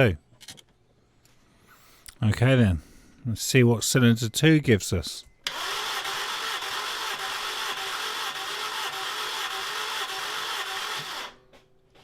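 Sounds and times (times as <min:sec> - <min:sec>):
engine cranking on starter motor: 0:05.4 - 0:12.0.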